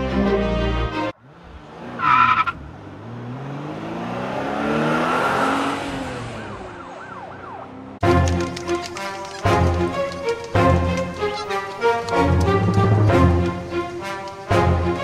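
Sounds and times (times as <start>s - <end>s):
tire screech: 1.2s - 7.6s, 10.8s - 15.0s
car engine whine: 1.2s - 15.0s.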